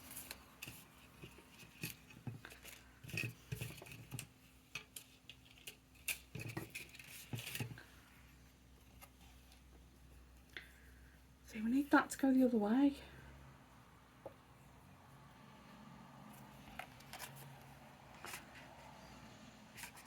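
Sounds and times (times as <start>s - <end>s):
paper rustling: 19.7s - 20.0s.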